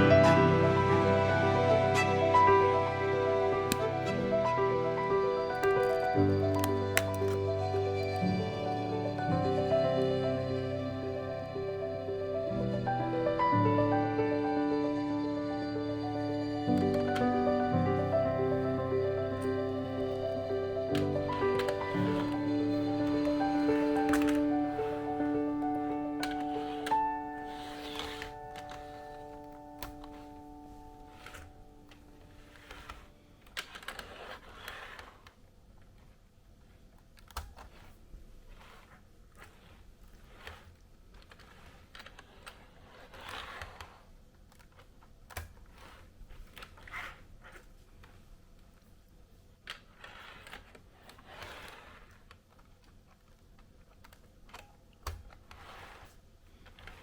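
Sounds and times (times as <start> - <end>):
background music: 0.0 - 33.1
plastic parts clicking and rustling: 20.9 - 30.4, 31.0 - 36.2, 36.8 - 48.9, 49.6 - 57.0.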